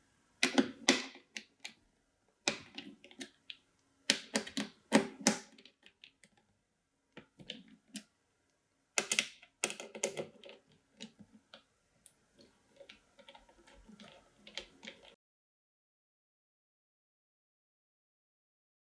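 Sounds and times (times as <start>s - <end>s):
computer parts clicking and clattering: 9.0s - 11.2s.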